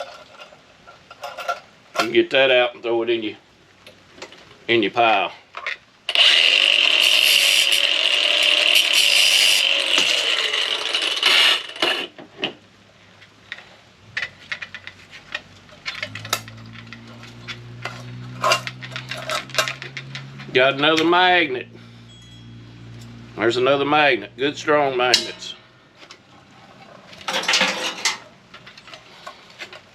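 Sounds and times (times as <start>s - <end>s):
power tool whining: 6.1s - 12.1s
small metallic clicks and knocks: 13.2s - 21.1s.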